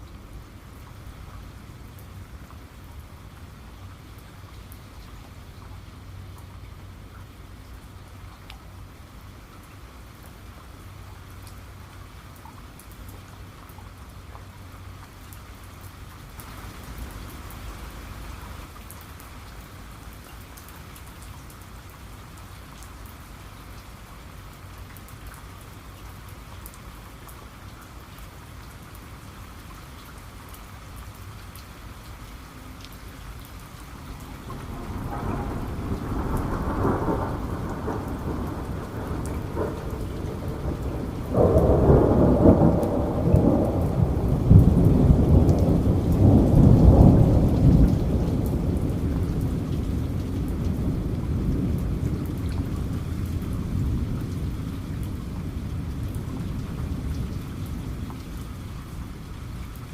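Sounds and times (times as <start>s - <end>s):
steady rain falling: 0.0s - 59.9s
raindrops ticking: 29.6s - 59.9s
thunder rolling: 34.3s - 58.0s.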